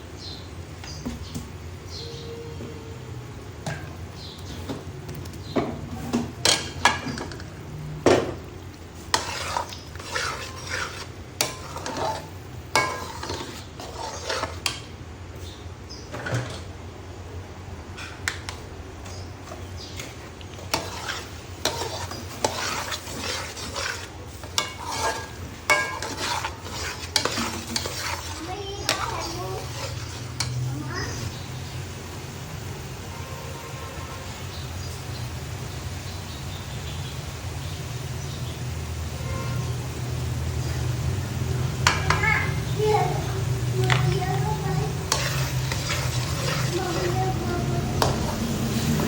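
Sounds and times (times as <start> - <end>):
food sizzling: 2.5 - 15.7, 16.4 - 49.0
spoon stirring and scraping pot: 3.6 - 15.5, 18.0 - 31.2, 41.5 - 49.0.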